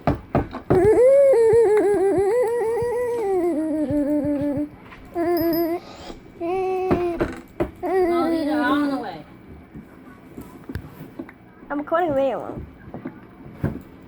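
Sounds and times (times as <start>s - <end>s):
person humming with warble: 0.7s - 8.9s.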